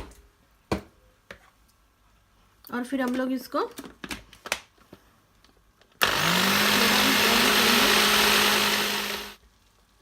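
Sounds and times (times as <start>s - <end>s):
electric mixer grinder whirring: 6.0s - 9.4s.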